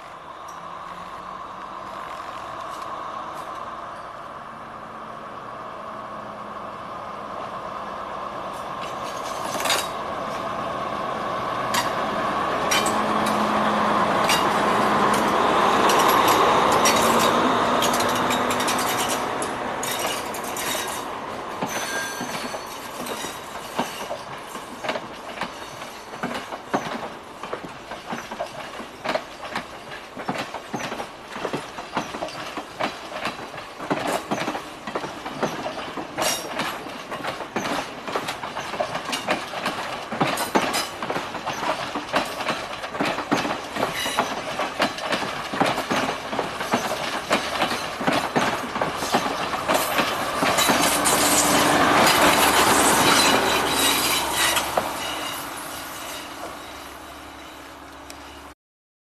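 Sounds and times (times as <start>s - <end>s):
diesel train running: 0.0s - 58.6s
wheels clacking over rail joints: 8.5s - 10.6s, 11.4s - 56.8s.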